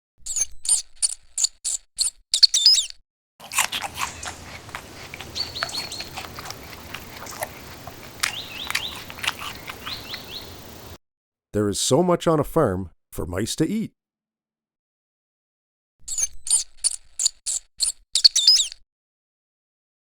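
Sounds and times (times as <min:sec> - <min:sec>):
mouse squeaking: 0:01.7 - 0:11.0, 0:16.1 - 0:18.8.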